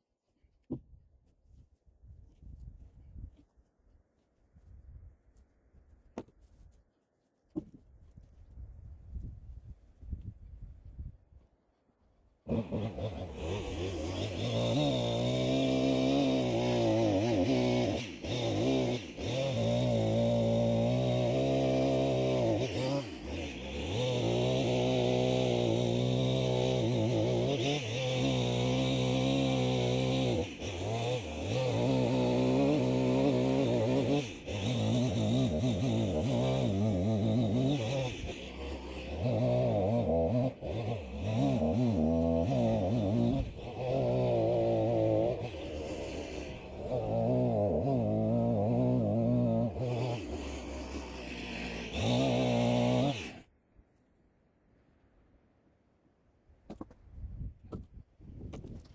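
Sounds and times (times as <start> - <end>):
chainsaw cutting logs: 7.5 - 7.8, 12.4 - 53.6, 56.6 - 58.9.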